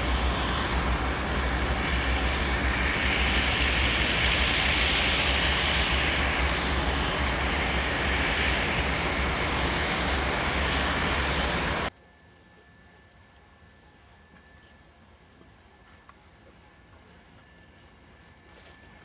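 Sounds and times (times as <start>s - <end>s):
train rumbling in motion: 0.0s - 11.9s.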